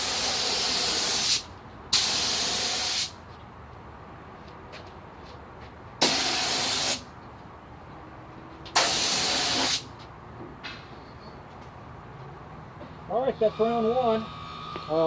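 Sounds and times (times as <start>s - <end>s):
paint spray gun hissing: 0.0s - 1.4s, 2.0s - 3.1s, 6.0s - 7.0s, 8.8s - 9.8s.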